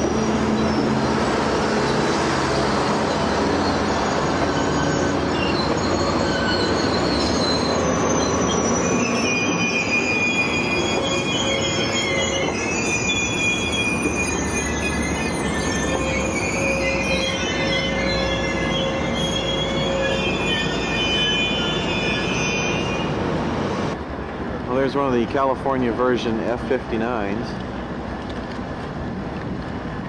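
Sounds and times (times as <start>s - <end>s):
train wheels squealing on rails: 0.0s - 24.0s
train rumble: 0.0s - 30.0s.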